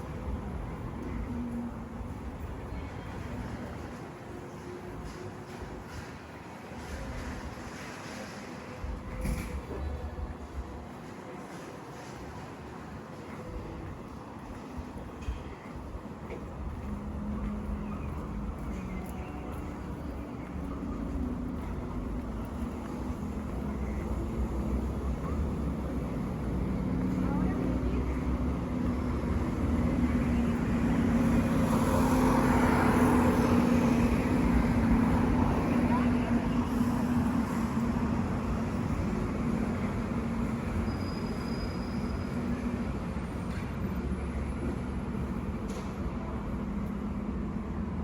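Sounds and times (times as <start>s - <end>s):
road noise: 0.0s - 48.0s
traffic rumble: 8.8s - 48.0s.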